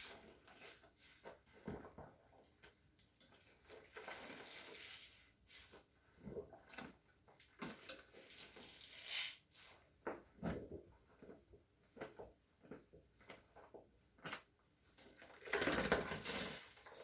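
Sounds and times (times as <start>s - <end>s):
soapy squishing and swishing: 0.0s - 2.7s, 3.5s - 7.0s, 15.0s - 17.0s.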